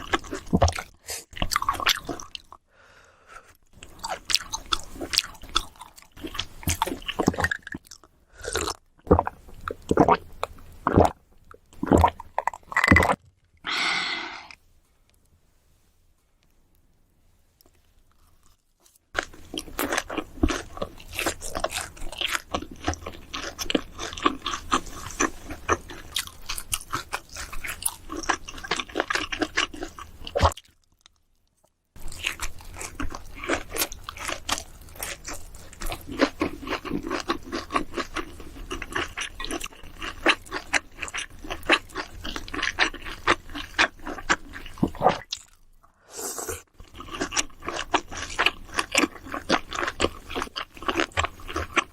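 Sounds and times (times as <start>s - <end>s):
person chewing food: 0.0s - 2.6s, 3.3s - 13.2s, 17.7s - 51.9s.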